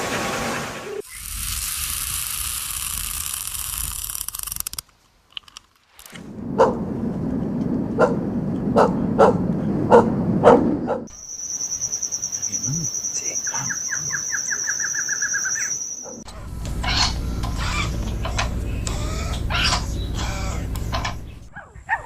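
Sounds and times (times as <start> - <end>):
dog barking: 6.6 - 6.8, 8.0 - 8.2, 8.8 - 11.1, 21.5 - 22.0
low background rumble: 16.3 - 21.5.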